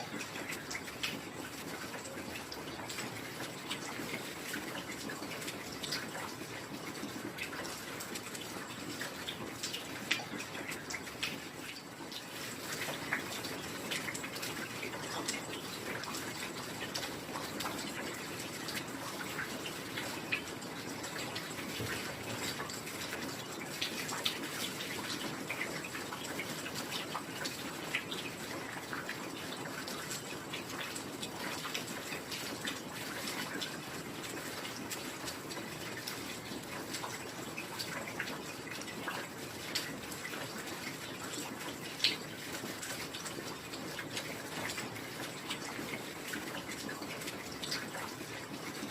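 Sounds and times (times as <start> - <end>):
raindrops ticking: 0.0 - 48.9.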